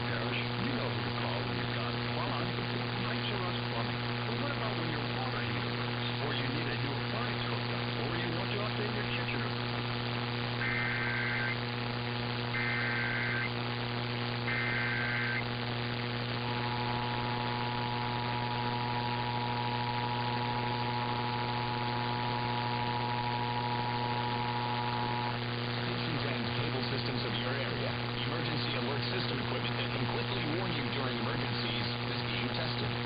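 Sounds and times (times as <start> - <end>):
electrical hum: 0.0 - 33.0
static: 0.0 - 33.0
digital data tone bursts: 10.6 - 11.6, 12.5 - 13.5, 14.5 - 15.4.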